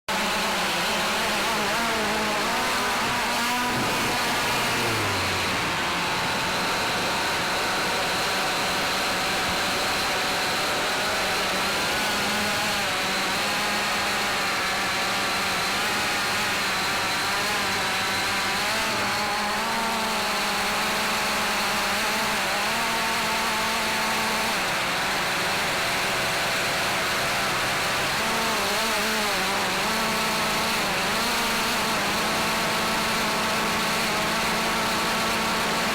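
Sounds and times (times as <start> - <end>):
drone propellers whining: 0.4 - 10.7.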